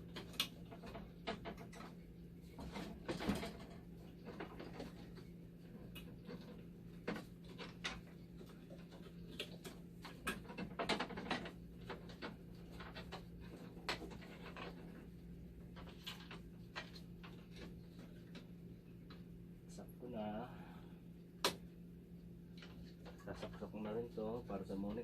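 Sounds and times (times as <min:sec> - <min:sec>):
parts clicking and knocking: 0:00.0 - 0:19.3
steady low hum: 0:00.0 - 0:25.0.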